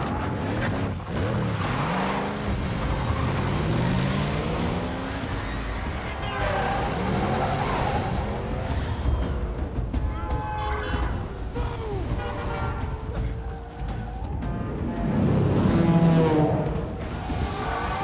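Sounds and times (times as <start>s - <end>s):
car engines revving: 0.0s - 18.0s
tyres on a wet road: 0.0s - 18.0s.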